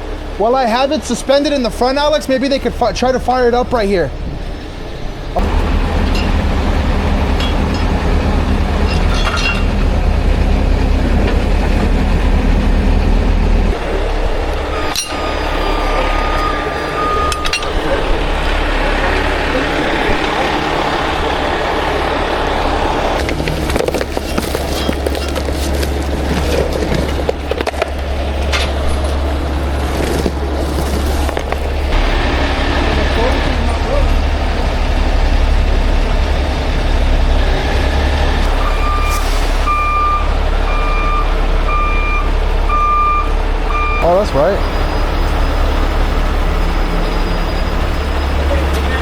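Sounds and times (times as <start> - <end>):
heavy diesel engine running: 0.0 - 49.0
knocks and clanks: 5.4 - 15.4.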